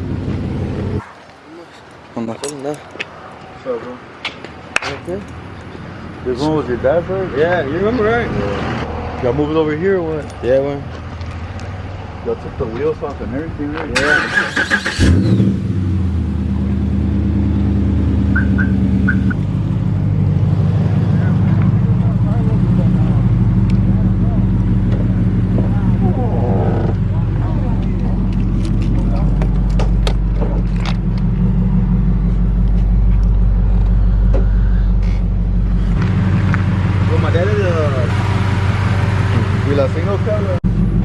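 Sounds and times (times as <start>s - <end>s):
truck engine cranking and idling: 8.9s - 41.0s.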